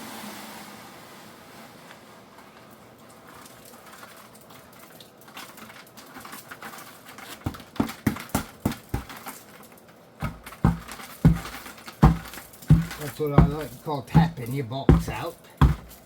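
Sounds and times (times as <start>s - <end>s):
wet concrete pouring from bucket: 3.2s - 9.4s, 10.2s - 16.0s
bucket knocking: 7.4s - 9.2s, 10.2s - 16.0s.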